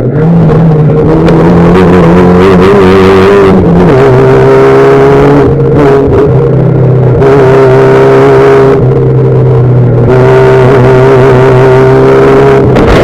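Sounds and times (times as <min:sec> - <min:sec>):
racing car engine high revs: 0:00.0 - 0:13.0.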